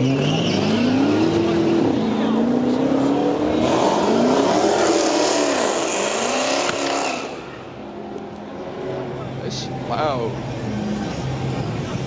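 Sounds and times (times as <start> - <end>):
car engine revving hard: 0.0 - 7.5.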